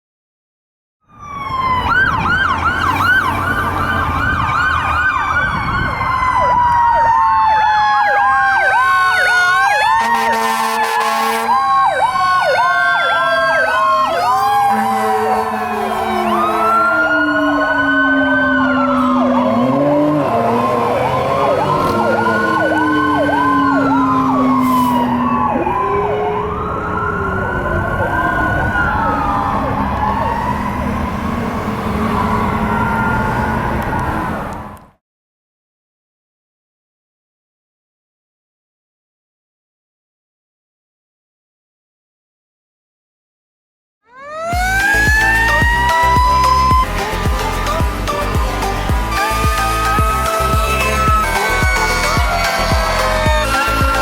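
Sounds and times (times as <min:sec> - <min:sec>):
siren wails: 0:01.0 - 0:35.0, 0:44.0 - 0:54.0
siren yelp: 0:01.0 - 0:35.0, 0:44.0 - 0:54.0
air horn blasts: 0:09.9 - 0:11.7, 0:14.6 - 0:16.5, 0:48.8 - 0:54.0.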